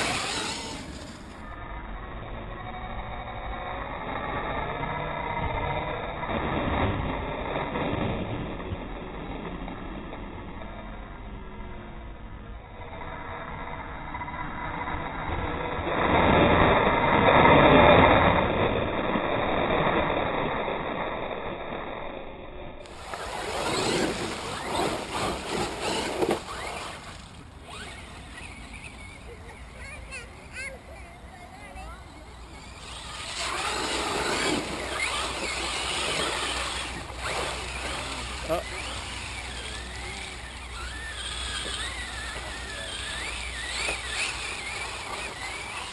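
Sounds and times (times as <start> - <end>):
steady noise: 0.0 - 2.3, 13.4 - 45.9
electric motor whine: 0.0 - 9.9, 21.1 - 45.9
water splashing and sloshing: 22.9 - 27.4.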